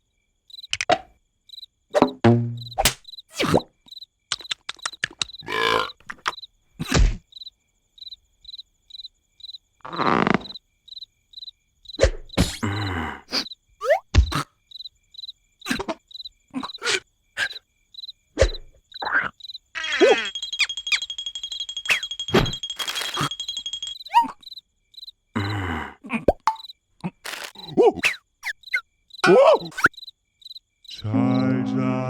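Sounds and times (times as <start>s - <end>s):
cricket chirping: 0.0s - 31.8s
cartoon thumps: 2.0s - 3.6s, 26.3s - 30.0s
voiced creature noises: 4.4s - 7.2s, 12.0s - 14.5s, 15.7s - 17.6s, 18.4s - 20.3s, 25.4s - 29.9s, 30.9s - 32.0s
steady high tone: 19.8s - 24.3s.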